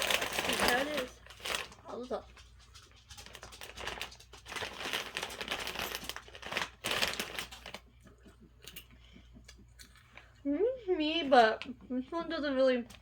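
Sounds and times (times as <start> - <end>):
popcorn bag crinkling: 0.0 - 7.9.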